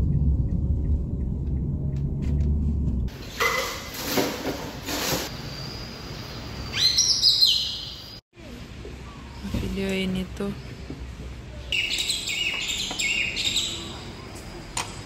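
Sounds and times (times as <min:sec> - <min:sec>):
birds chirping and whistling: 0:05.3 - 0:08.2, 0:11.7 - 0:14.0
rising whistled bird calls: 0:05.4 - 0:08.2.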